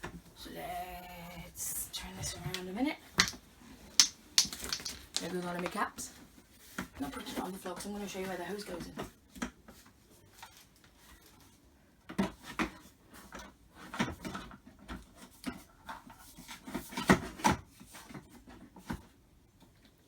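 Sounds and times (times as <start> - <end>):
handling knocks and taps: 2.2 - 3.4, 4.0 - 5.8.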